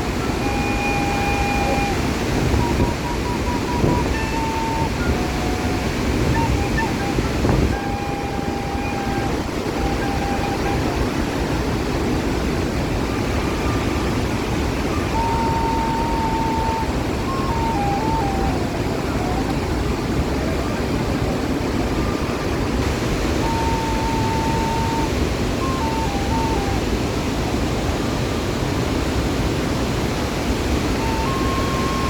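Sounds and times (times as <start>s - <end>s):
waterfall roaring: 0.0s - 32.0s
whistled notes: 0.2s - 11.6s, 14.8s - 22.6s, 23.4s - 26.9s, 31.0s - 32.0s.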